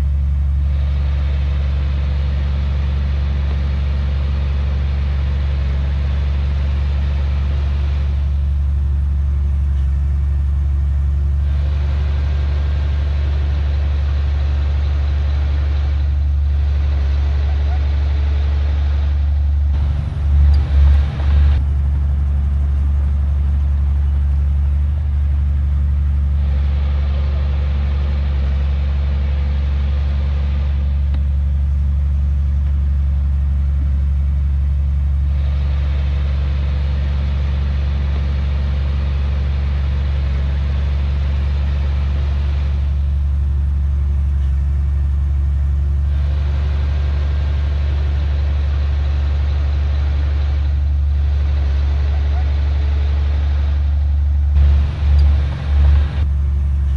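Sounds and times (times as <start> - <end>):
heavy diesel engine droning: 0.0 - 56.9
high rushing noise: 14.7 - 25.0.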